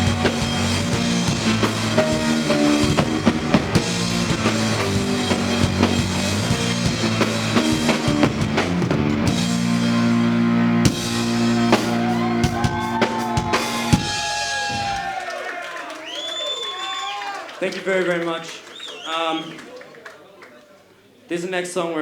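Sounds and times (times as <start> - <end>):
sustained guitar and bass notes: 0.0 - 15.1
drum kit hits: 0.0 - 15.2.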